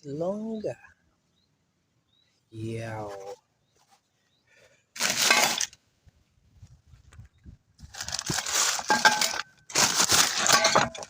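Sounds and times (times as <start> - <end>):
crinkling scraping handling noise: 5.0 - 5.8, 7.0 - 11.0.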